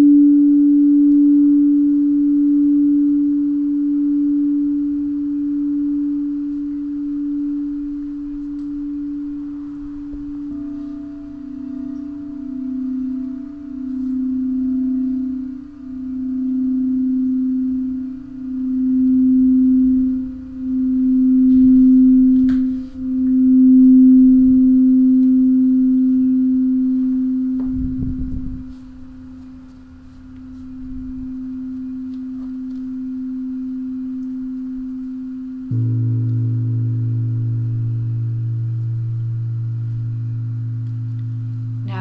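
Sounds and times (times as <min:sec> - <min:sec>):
singing bowl tone: 0:00.0 - 0:42.0
low rumble: 0:35.7 - 0:42.0.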